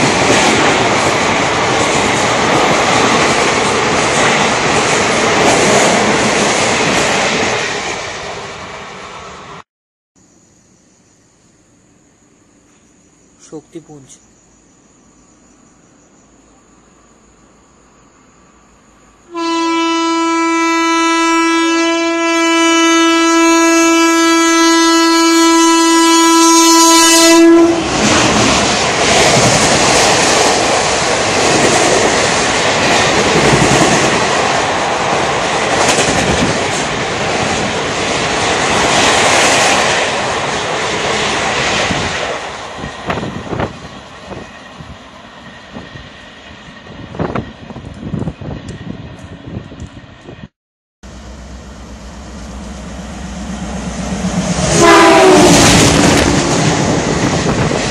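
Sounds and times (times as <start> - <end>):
train wheel and rail noise: 0.0 - 9.6, 21.3 - 57.9
train horn blast: 19.3 - 28.1, 51.1 - 56.4.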